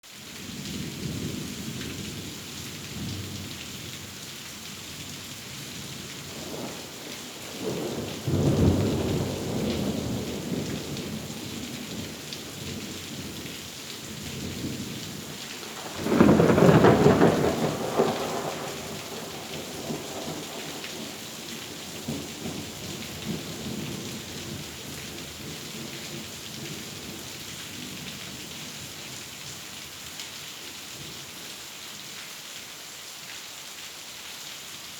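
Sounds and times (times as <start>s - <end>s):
steady rain: 0.0s - 34.9s
thunder rumbling: 6.3s - 13.4s, 14.2s - 24.6s.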